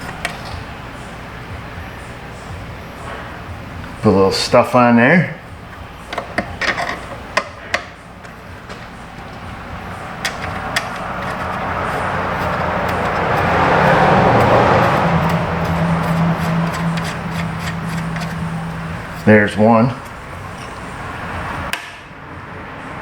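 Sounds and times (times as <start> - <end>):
machine running with low hum: 8.0 - 21.7.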